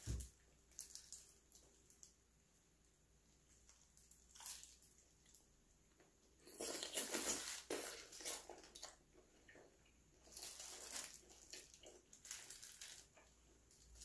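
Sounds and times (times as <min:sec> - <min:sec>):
wet sucking and chewing: 0:06.4 - 0:12.2.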